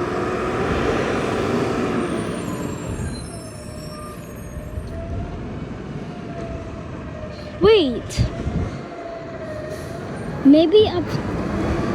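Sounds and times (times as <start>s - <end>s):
faint high squeals: 2.1s - 5.0s.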